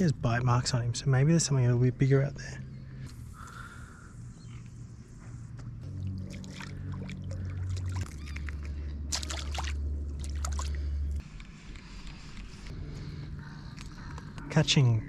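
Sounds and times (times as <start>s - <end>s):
water splashing and sloshing: 5.8s - 12.8s
loud low drone: 5.8s - 15.0s.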